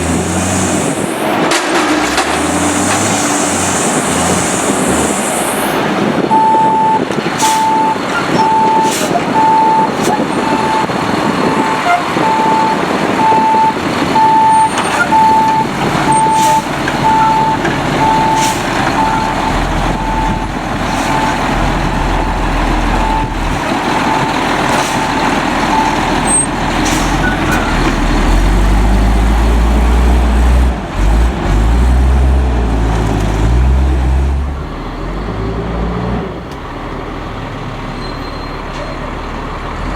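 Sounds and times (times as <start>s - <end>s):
truck engine: 0.0s - 39.9s
reversing alarm beeping: 6.3s - 24.4s, 25.0s - 26.5s.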